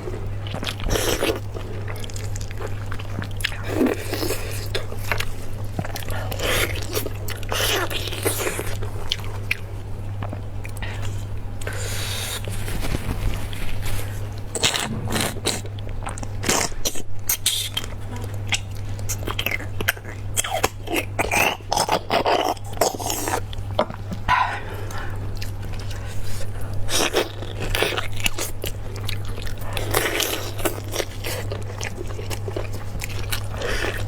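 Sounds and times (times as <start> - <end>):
low hum: 14.0 - 16.5
biting and chewing bones: 14.0 - 34.0.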